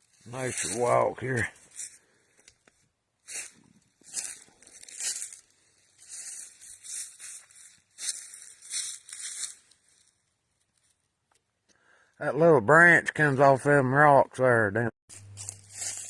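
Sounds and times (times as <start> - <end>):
footsteps on dry leaves: 0.0 - 2.5, 3.2 - 10.2, 15.1 - 16.0.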